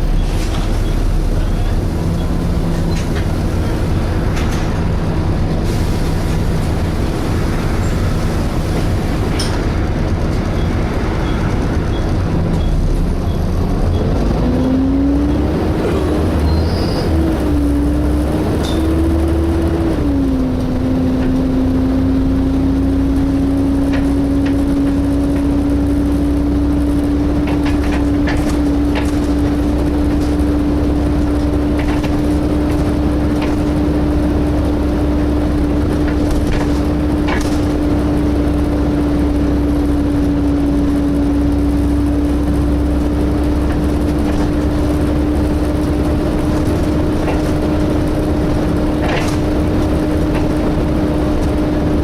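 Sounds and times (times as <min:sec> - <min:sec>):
bus engine rumble: 0:00.0 - 0:52.0
engine cooling fan whining: 0:00.0 - 0:52.0
bus body knocks and rattles: 0:23.6 - 0:40.4, 0:42.4 - 0:52.0.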